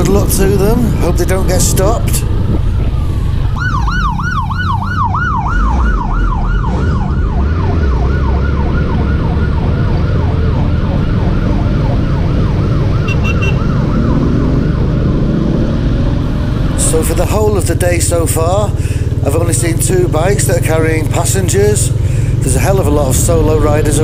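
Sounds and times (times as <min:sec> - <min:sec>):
street traffic rumble: 0:00.0 - 0:24.0
emergency siren yelping: 0:02.6 - 0:16.1.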